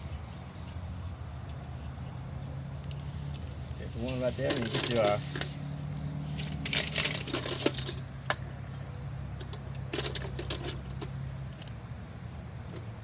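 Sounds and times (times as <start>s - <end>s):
hex wrench clinking on metal: 4.1s - 5.6s, 6.4s - 8.4s.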